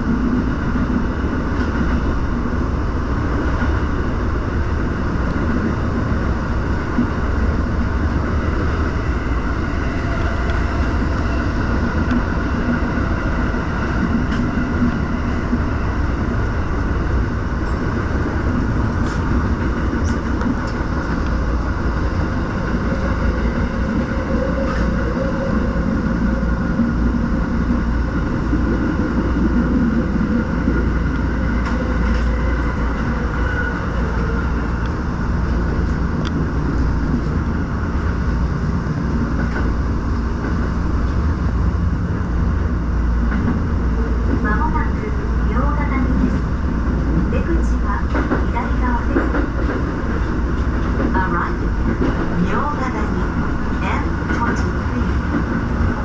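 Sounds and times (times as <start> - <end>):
constant hum: 0.0 - 56.0
train wheels rumbling on rail: 0.0 - 56.0.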